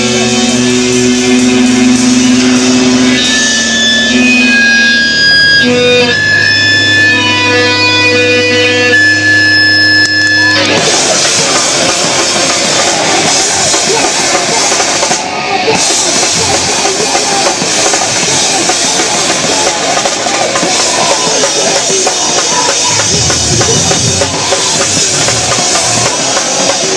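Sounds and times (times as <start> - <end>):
rock band with drum kit: 0.0 - 26.9
guitar chord ringing: 1.6 - 10.8.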